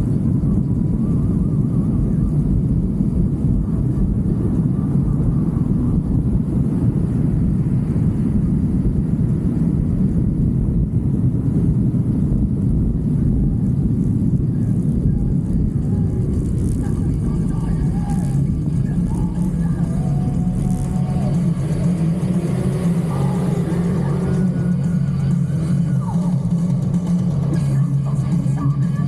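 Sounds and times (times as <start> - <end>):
motorcycle rumble at road speed: 0.0 - 29.0
wind buffeting microphone: 0.0 - 29.0.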